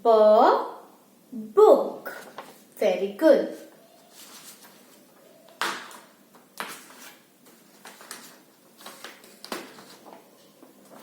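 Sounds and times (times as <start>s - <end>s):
rustling and scraping handling noises: 2.1s - 2.8s, 3.5s - 11.0s.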